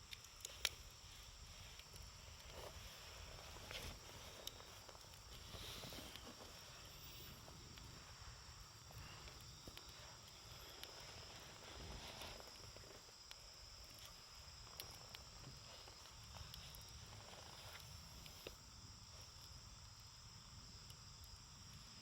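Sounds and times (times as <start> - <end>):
campfire crackling faintly: 0.0 - 22.0
insects droning: 0.0 - 22.0.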